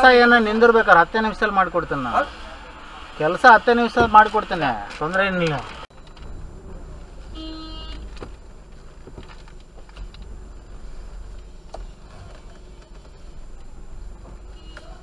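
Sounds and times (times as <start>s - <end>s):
car engine low rumble: 5.9s - 15.0s.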